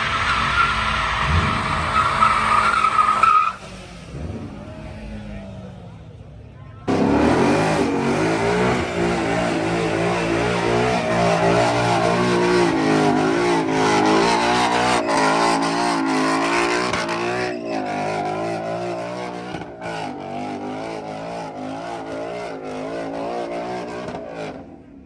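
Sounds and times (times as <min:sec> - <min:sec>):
car engine revving: 0:06.9 - 0:25.0.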